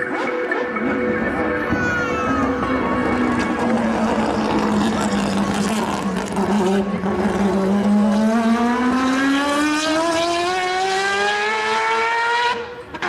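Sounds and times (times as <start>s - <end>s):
car engine accelerating hard: 2.6s - 13.0s.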